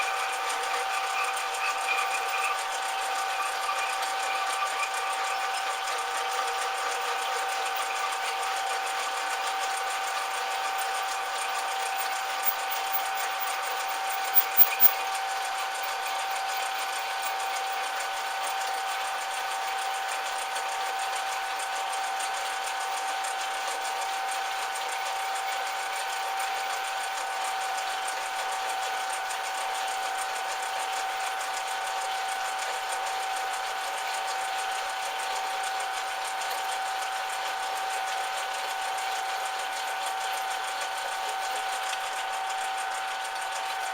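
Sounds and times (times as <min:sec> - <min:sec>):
metal lathe whining: 0:00.0 - 0:43.9.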